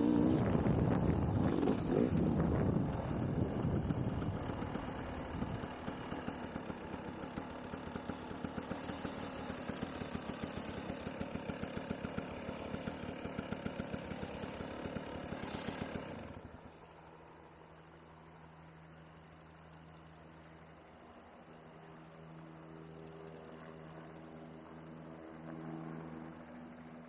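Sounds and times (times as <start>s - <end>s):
dirt bike engine idling: 0.0s - 27.0s
faint steady hum: 16.5s - 27.0s.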